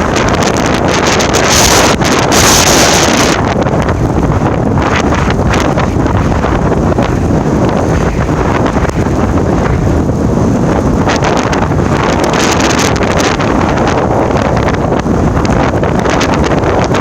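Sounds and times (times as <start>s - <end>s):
blizzard wind buffeting microphone: 0.0s - 17.0s.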